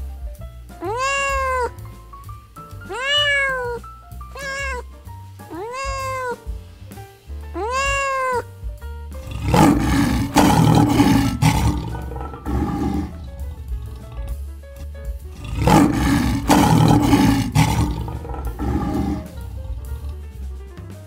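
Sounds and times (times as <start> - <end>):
background music: 0.0 - 21.0
cat meowing: 0.8 - 1.8, 2.9 - 4.8, 5.5 - 6.5, 7.6 - 8.5, 9.3 - 14.1, 15.4 - 20.1
lion growling: 9.2 - 14.4, 15.3 - 20.4.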